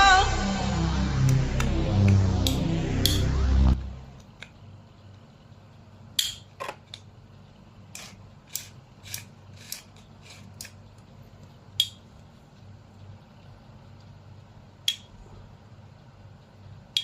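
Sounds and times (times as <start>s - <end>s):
sharp clicks and scrapes: 7.9s - 10.8s.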